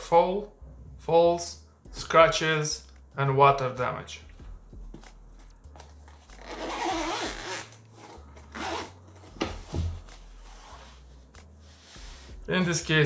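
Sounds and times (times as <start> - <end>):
zipper being pulled open: 5.8 - 9.4.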